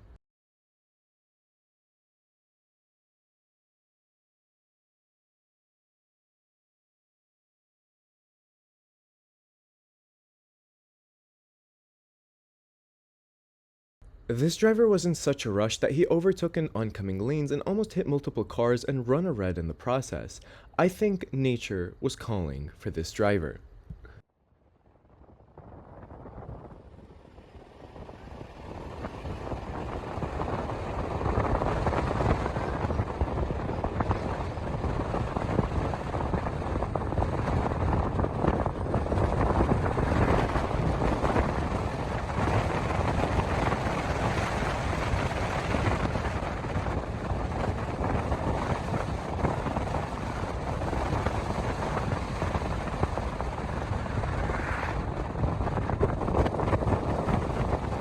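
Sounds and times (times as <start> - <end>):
car road and wind rumble: 24.8 - 58.0.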